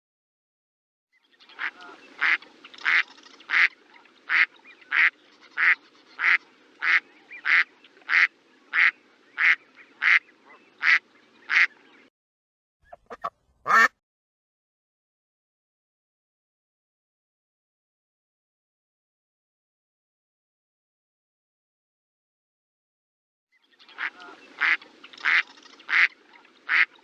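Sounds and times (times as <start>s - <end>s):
duck quacking: 1.6s - 11.7s, 12.9s - 13.9s, 24.0s - 27.0s.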